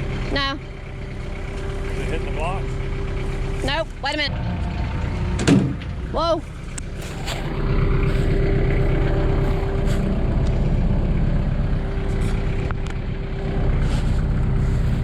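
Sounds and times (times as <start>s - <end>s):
machine engine rumbling: 0.0s - 15.0s.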